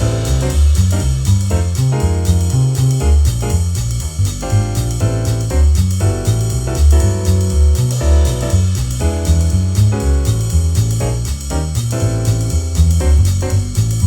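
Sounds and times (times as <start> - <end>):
drum kit with ride cymbal: 0.0 - 14.0
piano chords: 0.0 - 14.0
walking bass line: 0.0 - 14.0.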